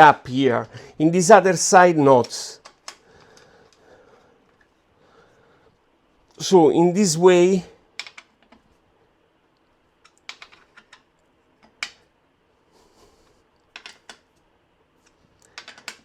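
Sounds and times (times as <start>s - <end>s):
metal parts and tools clicking: 15.4s - 16.0s.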